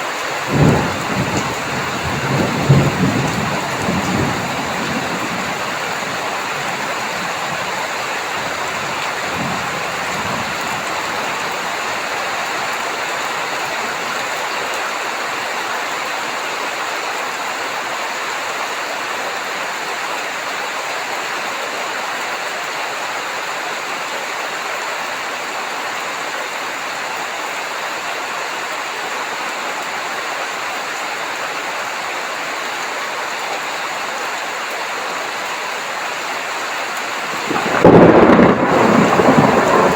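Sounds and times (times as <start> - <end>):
heavy rain falling: 0.0 - 39.9
low rumble of thunder: 0.4 - 12.3, 37.2 - 39.9.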